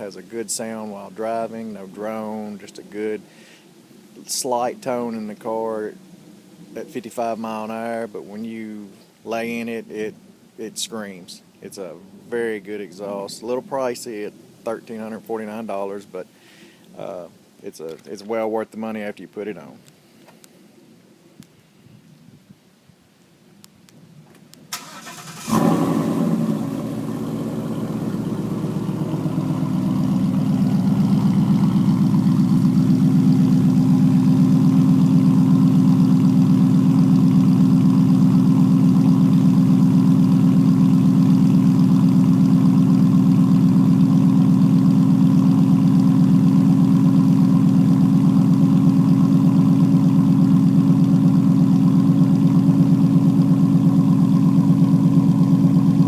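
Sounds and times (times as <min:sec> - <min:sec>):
car engine cold start: 0:24.7 - 0:56.0
loud engine idle: 0:25.5 - 0:56.0.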